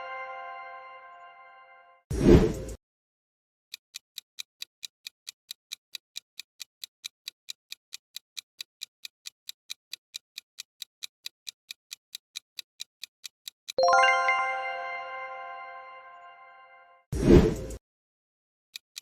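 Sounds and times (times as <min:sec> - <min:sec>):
countdown timer ticking: 0:13.7 - 0:16.6.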